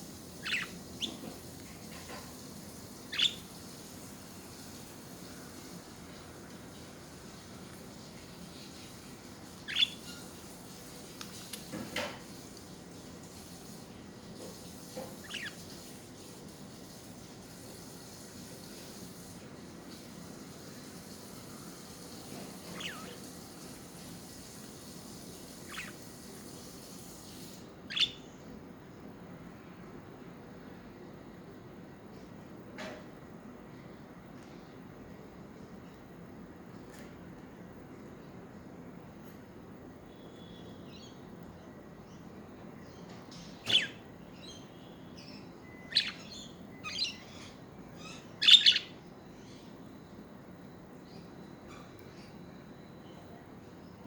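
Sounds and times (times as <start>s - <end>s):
steady low background noise: 0.0s - 54.0s
budgerigar chirps: 0.4s - 1.3s, 3.1s - 3.5s, 9.7s - 10.3s, 15.2s - 15.6s, 22.6s - 23.3s, 25.6s - 26.0s, 27.9s - 28.3s, 43.6s - 44.6s, 45.3s - 49.0s.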